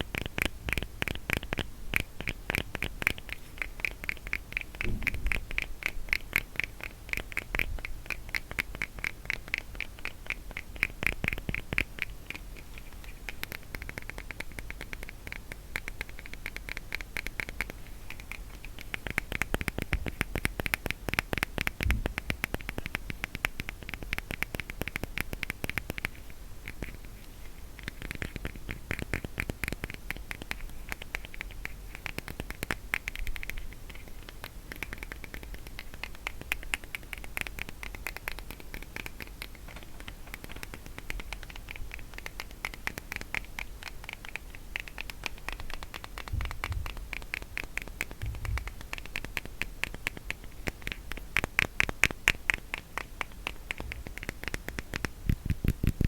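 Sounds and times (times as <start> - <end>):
fingertips tapping and scratching: 0.0 - 56.0
soft thumps: 4.8 - 5.4.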